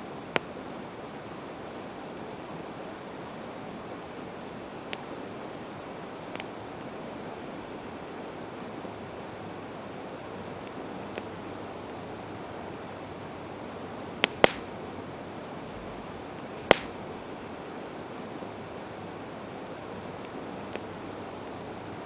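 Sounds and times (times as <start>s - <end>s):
campfire crackling and popping: 0.3s - 7.9s, 14.0s - 17.6s
cricket chirping: 1.0s - 8.4s.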